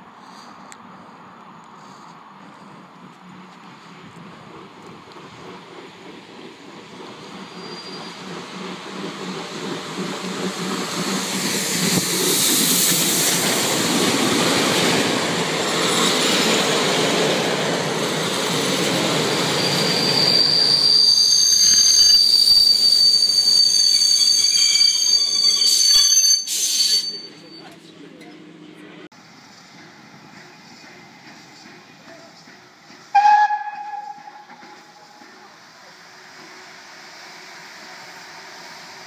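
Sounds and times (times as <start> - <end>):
train coaches rumbling past: 0.1 - 39.0
high-pitched brake squeal: 7.4 - 8.3, 19.1 - 27.9.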